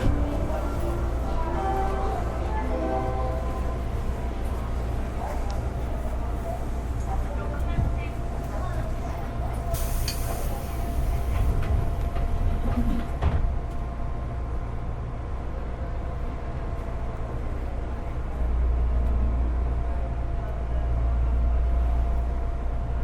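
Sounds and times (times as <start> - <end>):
train interior low rumble: 0.0 - 23.0.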